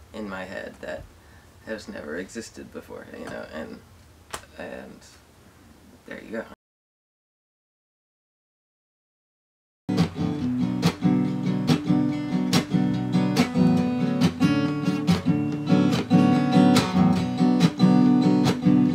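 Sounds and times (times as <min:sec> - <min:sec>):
acoustic guitar strumming: 0:09.9 - 0:18.9.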